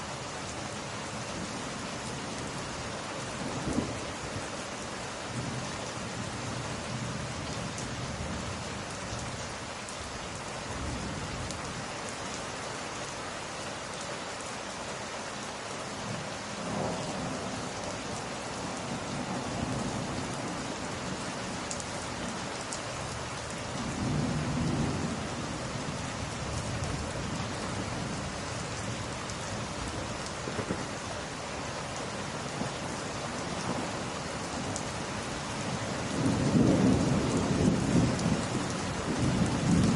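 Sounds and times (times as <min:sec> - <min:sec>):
steady rain falling: 0:00.0 - 0:39.9
distant thunder rumbling: 0:23.8 - 0:31.0, 0:32.5 - 0:35.0, 0:35.7 - 0:39.9.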